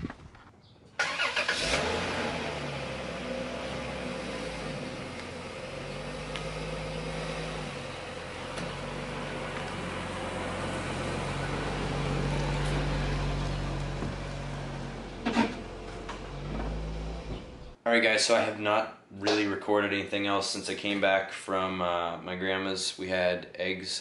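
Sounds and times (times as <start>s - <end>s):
car engine starting and running: 1.0s - 17.8s.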